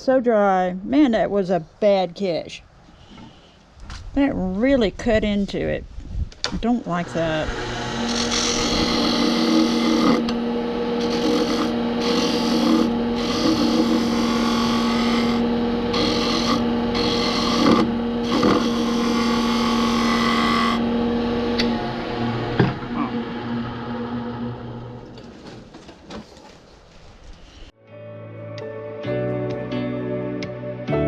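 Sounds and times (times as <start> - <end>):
turning tool cutting wood: 6.9 - 24.4
wood lathe motor humming: 7.0 - 25.2.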